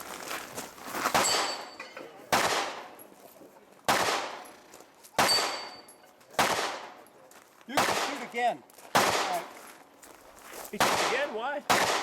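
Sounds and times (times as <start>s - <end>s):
carbine gunshots echoing: 2.3s - 3.0s, 3.9s - 4.5s, 5.2s - 7.0s, 7.7s - 9.6s, 10.8s - 12.0s.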